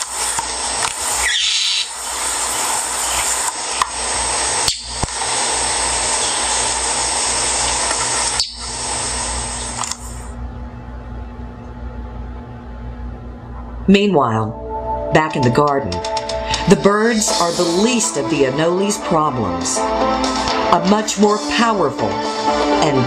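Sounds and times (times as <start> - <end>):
loud steady hiss: 0.0 - 10.4, 16.5 - 18.4
bird calls: 1.2 - 3.9, 7.6 - 8.7.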